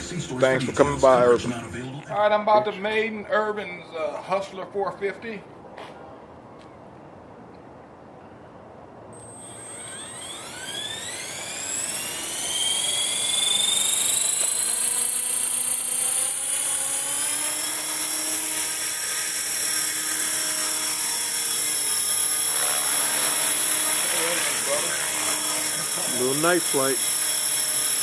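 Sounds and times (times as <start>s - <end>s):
rc helicopter motor and rotor whine: 9.1s - 28.0s.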